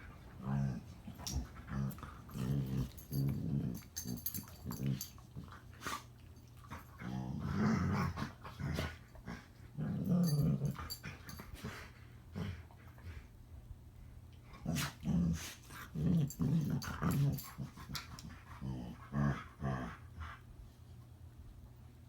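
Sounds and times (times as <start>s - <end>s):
dogs play-growling: 0.0s - 13.3s, 14.4s - 20.5s.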